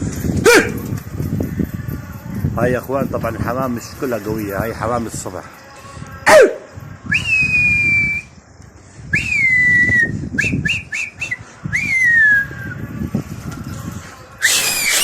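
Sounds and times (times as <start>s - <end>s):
man whistling loudly: 14.4s - 15.0s
sharp crack: 14.4s - 15.0s.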